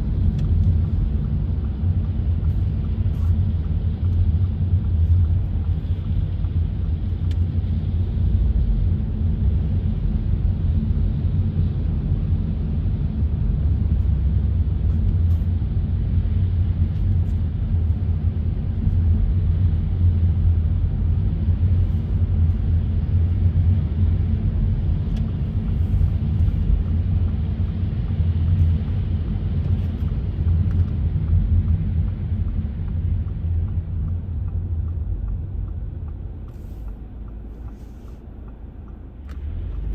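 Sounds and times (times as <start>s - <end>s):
car driving rumble: 0.0s - 39.9s.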